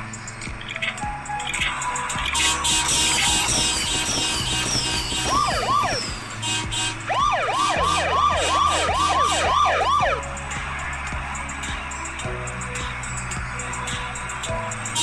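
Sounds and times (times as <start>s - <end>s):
background music: 0.0s - 15.0s
cartoon police siren: 7.2s - 10.2s.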